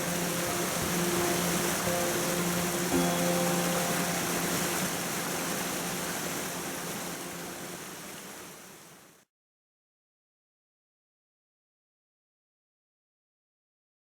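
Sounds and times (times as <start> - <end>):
background music held notes: 0.0 - 8.2
stream rushing: 0.0 - 9.2.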